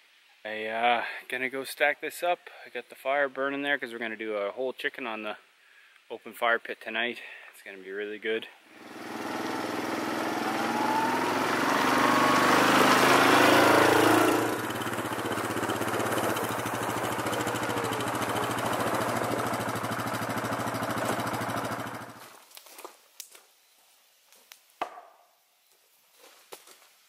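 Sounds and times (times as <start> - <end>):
quad bike engine running: 8.8 - 22.2.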